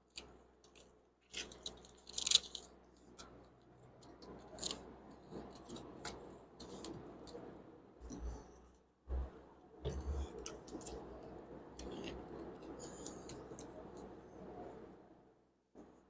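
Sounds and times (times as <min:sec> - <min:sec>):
tape crinkling and clicking: 0:00.1 - 0:07.4.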